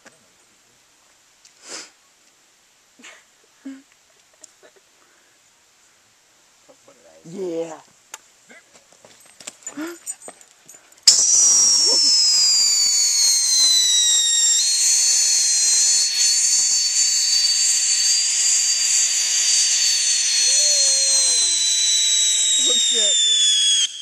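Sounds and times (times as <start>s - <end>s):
ground fountain firework hissing: 1.5s - 2.5s, 11.0s - 24.0s
high whistling tones: 11.0s - 24.0s.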